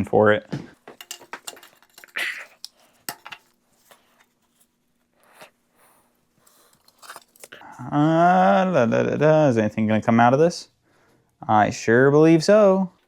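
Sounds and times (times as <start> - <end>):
hand tools clicking and scraping: 0.9 - 4.7.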